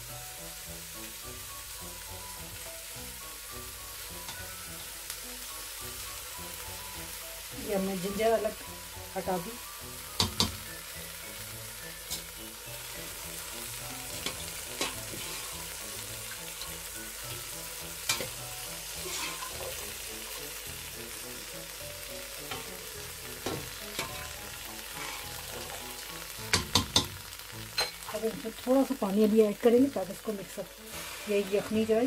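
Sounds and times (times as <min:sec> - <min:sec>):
meat sizzling in a pot: 0:00.0 - 0:32.0
spoon clacking against pot: 0:10.2 - 0:10.7, 0:26.5 - 0:27.2, 0:27.8 - 0:28.0.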